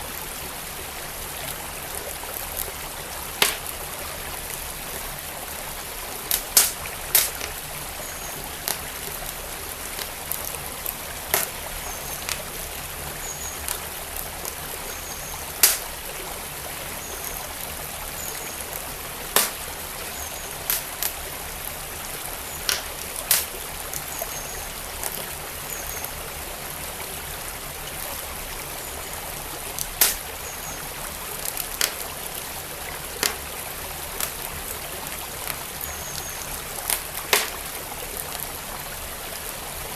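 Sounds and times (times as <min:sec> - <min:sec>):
stream flowing: 0:00.0 - 0:39.9
wood fire crackling and popping: 0:03.3 - 0:03.8, 0:06.2 - 0:12.6, 0:15.5 - 0:16.1, 0:19.3 - 0:21.3, 0:22.6 - 0:24.1, 0:29.8 - 0:30.4, 0:31.3 - 0:34.6, 0:36.7 - 0:37.8.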